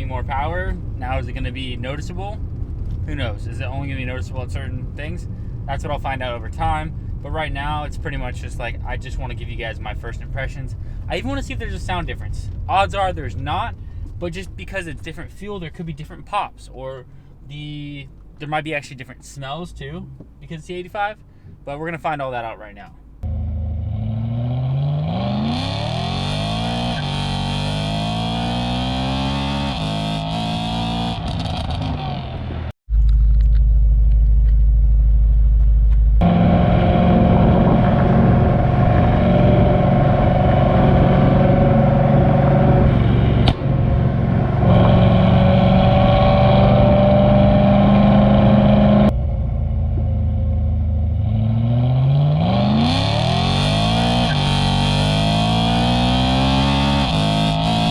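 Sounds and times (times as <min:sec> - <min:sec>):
car engine accelerating hard: 0:23.2 - 0:32.6, 0:36.2 - 0:57.9.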